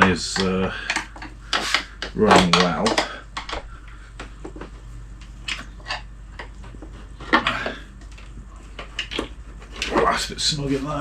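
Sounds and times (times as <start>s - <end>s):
scraping rustle: 8.6s - 11.0s.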